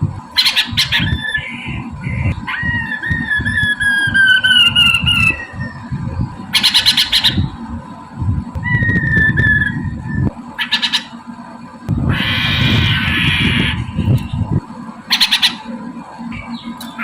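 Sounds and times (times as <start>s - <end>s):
low background rumble: 0.0s - 17.0s
bird harsh rasping squawks: 0.4s - 5.8s, 6.5s - 7.5s, 10.6s - 11.2s, 12.1s - 14.0s, 15.1s - 15.7s
bird whistling calls: 0.4s - 7.5s, 8.6s - 11.2s, 15.1s - 15.7s.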